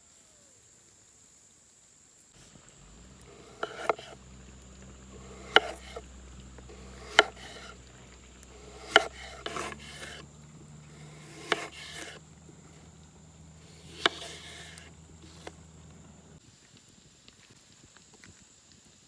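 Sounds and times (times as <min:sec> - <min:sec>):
short rasping scrape: 0:02.4 - 0:16.4
sharp knocks on wood: 0:06.7 - 0:07.7, 0:11.0 - 0:12.2.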